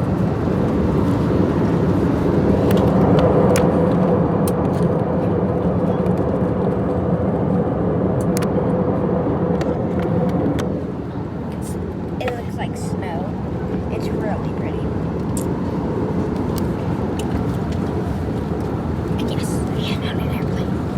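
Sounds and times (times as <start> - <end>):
jet engines and airflow rushing: 0.0 - 20.9.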